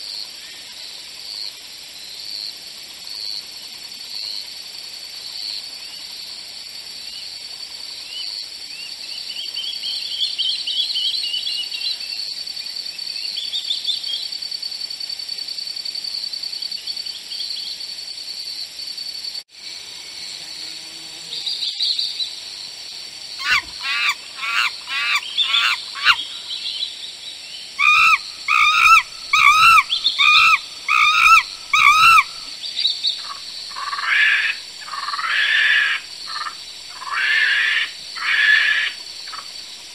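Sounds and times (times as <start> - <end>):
steady high hiss: 0.0 - 39.9
repeated bird calls: 23.4 - 27.0, 27.6 - 39.9
bird chirps: 23.4 - 38.7.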